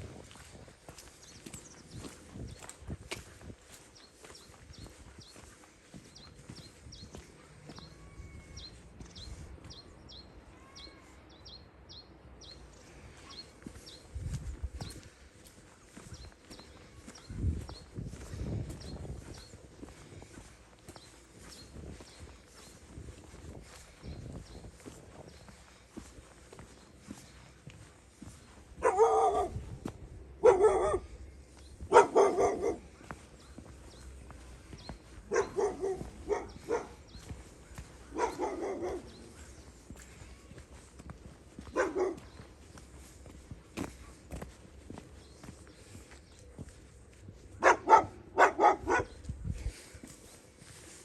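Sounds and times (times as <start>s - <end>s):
soft footsteps on a path: 0.0s - 51.0s
dog barking: 28.8s - 29.7s, 30.4s - 31.1s, 31.9s - 32.9s, 35.3s - 37.1s, 37.8s - 39.4s, 41.6s - 42.4s, 47.6s - 49.2s.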